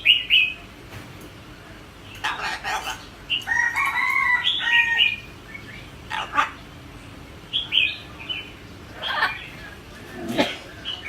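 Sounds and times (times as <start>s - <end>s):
parrot calling: 2.1s - 6.7s, 7.5s - 11.0s
parrot squawk: 2.2s - 5.2s, 6.1s - 6.6s, 9.0s - 9.5s.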